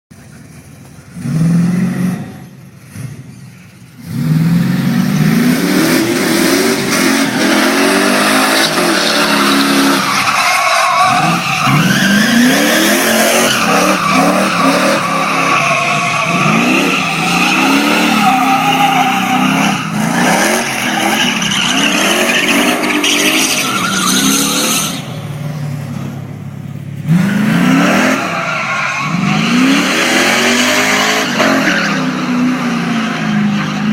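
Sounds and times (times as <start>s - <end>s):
truck engine revving: 0.2s - 33.9s
tyres squealing on pavement: 7.2s - 25.7s, 27.3s - 33.9s.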